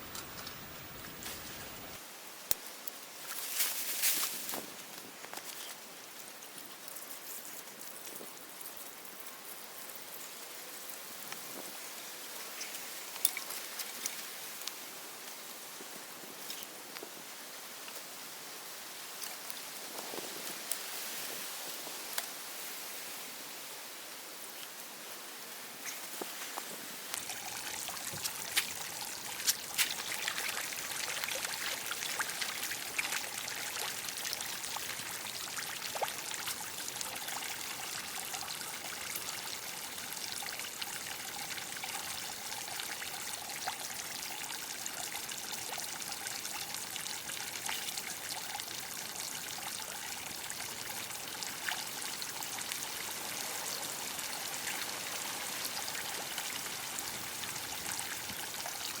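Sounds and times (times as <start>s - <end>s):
water running and pouring: 27.1s - 59.0s.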